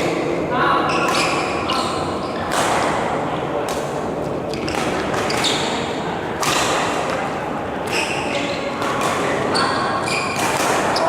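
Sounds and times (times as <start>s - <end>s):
shoes squeaking on court: 0.9s - 2.6s, 4.5s - 6.7s, 7.8s - 11.0s
racket striking shuttlecock: 1.0s - 1.9s, 3.6s - 11.0s.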